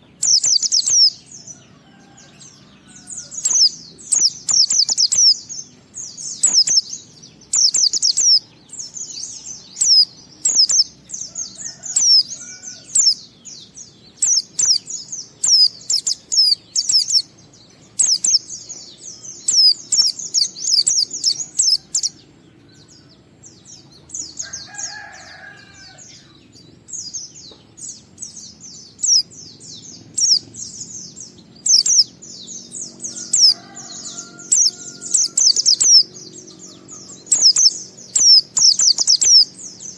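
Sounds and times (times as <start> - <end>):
bird high twittering song: 0.0 - 39.9
faint lower bird calls: 0.0 - 39.9.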